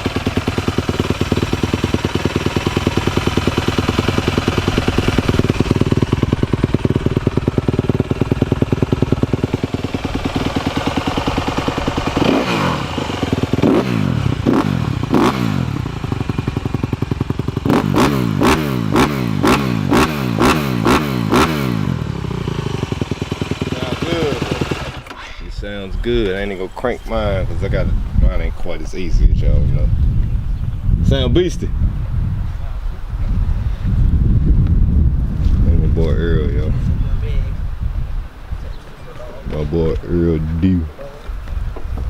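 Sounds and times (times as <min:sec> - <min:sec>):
dirt bike engine idling and revving: 0:00.0 - 0:25.3
electric starter: 0:23.7 - 0:25.2.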